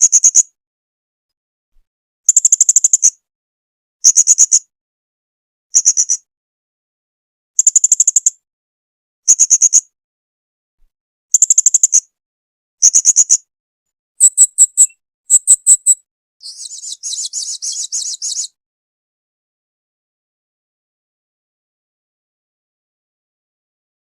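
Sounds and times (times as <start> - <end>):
parrot calling shrill trills: 14.2 - 18.5.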